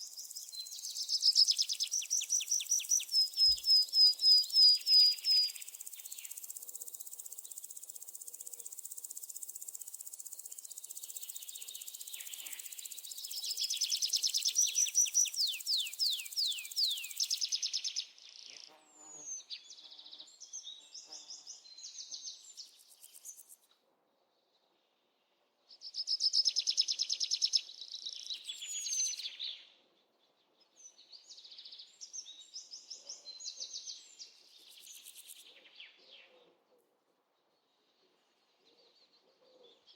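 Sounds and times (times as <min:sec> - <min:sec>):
bird chirps and trills: 0:00.0 - 0:06.6, 0:10.5 - 0:17.9
insect hiss: 0:00.0 - 0:18.0, 0:34.7 - 0:35.4.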